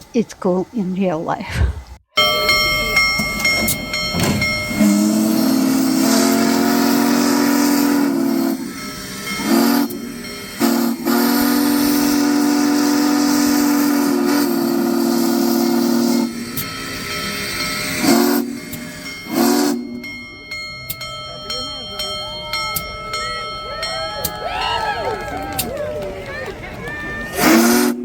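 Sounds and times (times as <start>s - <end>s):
steam locomotive whistle: 2.2s - 28.0s
steam hissing: 4.4s - 20.2s, 27.4s - 28.0s.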